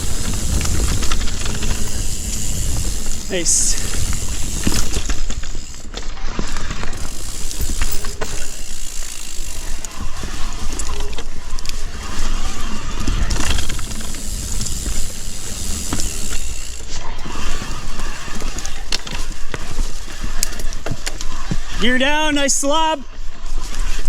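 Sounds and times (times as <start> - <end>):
chain and frame clattering: 0.0 - 21.2
bike hub ratcheting: 0.0 - 21.4.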